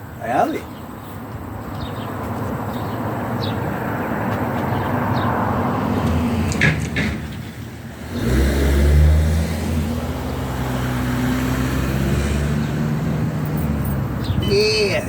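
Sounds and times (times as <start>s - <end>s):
vehicle engine driving past: 8.0s - 14.4s.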